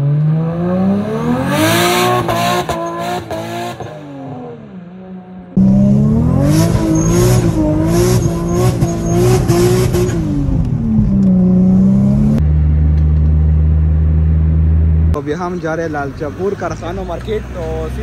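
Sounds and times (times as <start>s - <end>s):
car engine revving hard: 0.0s - 4.4s, 5.6s - 10.6s.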